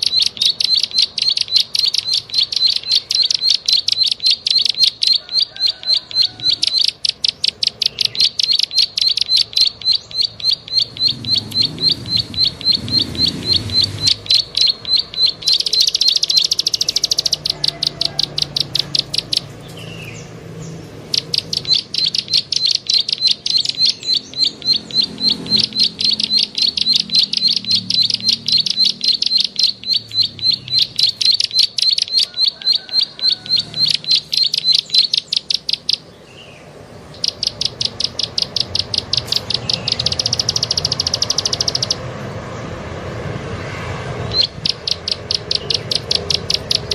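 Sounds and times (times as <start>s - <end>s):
bird sharp clicking calls: 0.0s - 42.1s, 44.3s - 46.9s.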